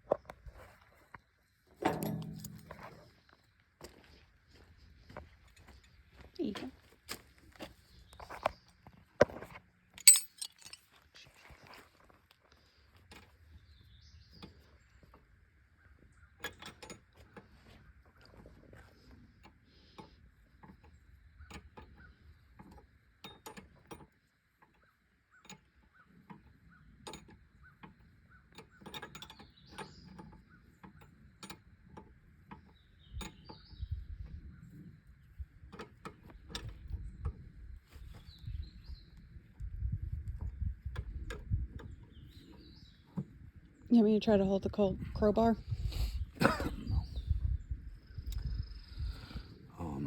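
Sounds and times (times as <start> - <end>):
sharp metal clank: 1.8 - 3.0, 10.0 - 10.8
metallic tool clicks and clinks: 10.0 - 10.8.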